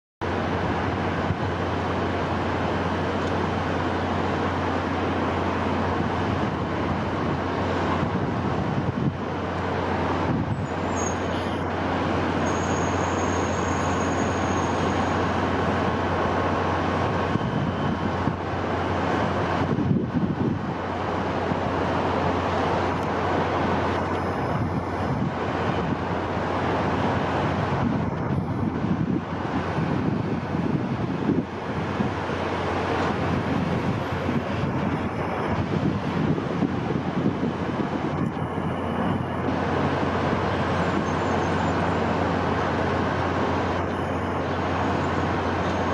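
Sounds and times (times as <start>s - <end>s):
wind rushing: 23.3s - 40.8s.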